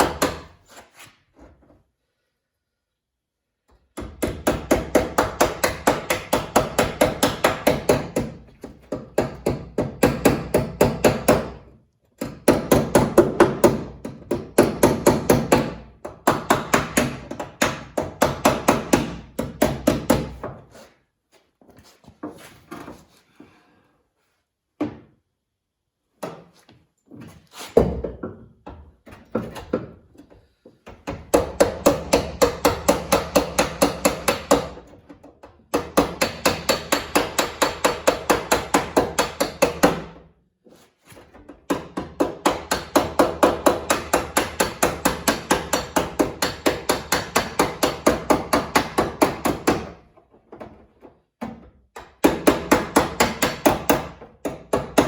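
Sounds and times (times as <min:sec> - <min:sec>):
body hammer striking sheet metal: 0:35.8 - 0:40.2.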